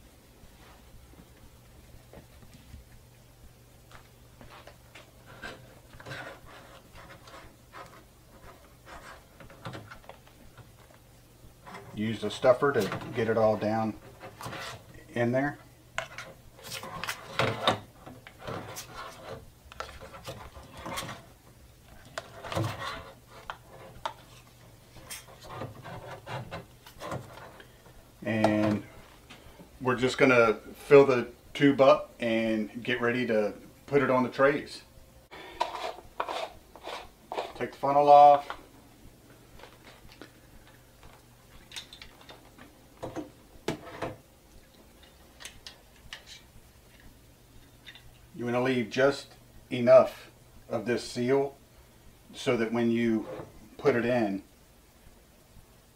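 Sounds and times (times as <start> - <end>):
rubbing scrapes: 4.5 - 9.5, 14.0 - 15.0, 18.4 - 21.4, 22.2 - 27.6, 35.6 - 37.7.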